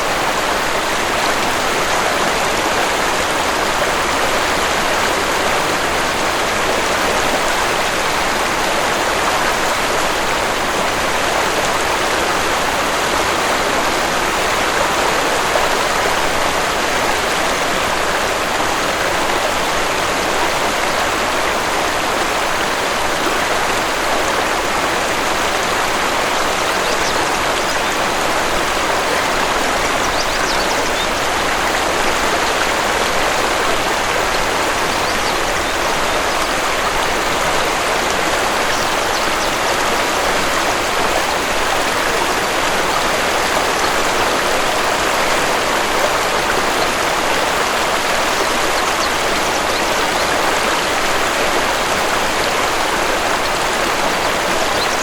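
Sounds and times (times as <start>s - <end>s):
waterfall rushing: 0.0s - 55.0s
faint bird chirps: 30.0s - 31.2s.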